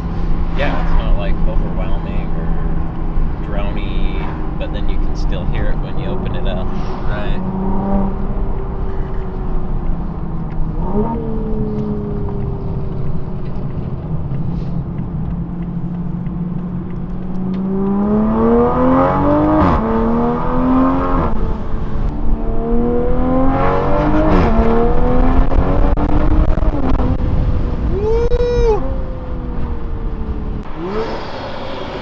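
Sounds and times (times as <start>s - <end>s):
sports car engine accelerating: 0.0s - 32.0s.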